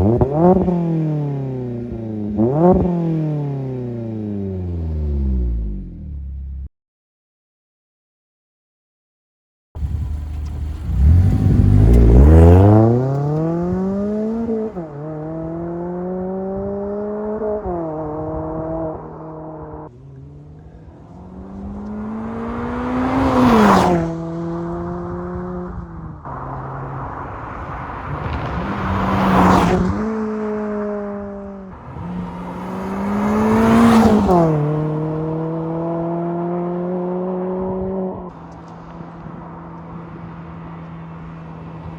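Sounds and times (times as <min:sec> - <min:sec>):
car engine accelerating: 0:00.0 - 0:06.7, 0:09.8 - 0:41.9
car driving by: 0:09.8 - 0:41.9.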